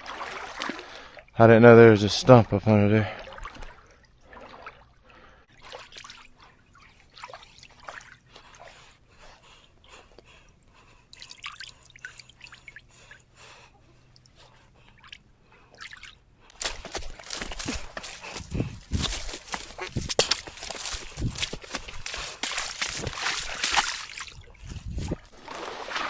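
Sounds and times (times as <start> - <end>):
shallow water splashing: 11.1 - 26.0.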